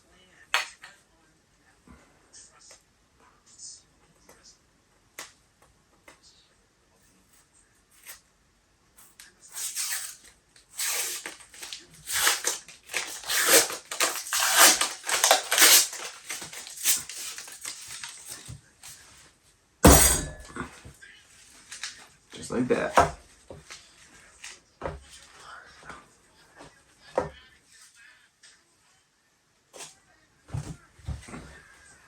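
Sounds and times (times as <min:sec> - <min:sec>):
paper wrapper crinkling and tearing: 0:09.6 - 0:19.0, 0:21.6 - 0:22.0.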